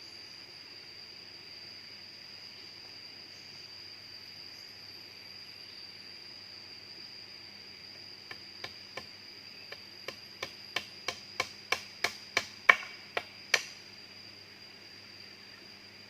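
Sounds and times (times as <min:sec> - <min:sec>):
high-pitched insect drone: 0:00.0 - 0:16.0
sharp knocks: 0:10.1 - 0:13.7.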